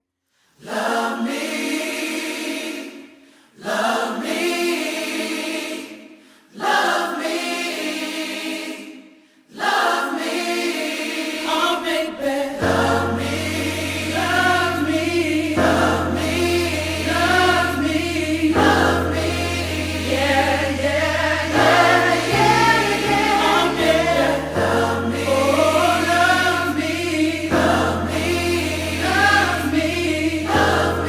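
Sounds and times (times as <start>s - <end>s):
choir singing: 0.6s - 31.0s
low bass notes: 12.6s - 31.0s.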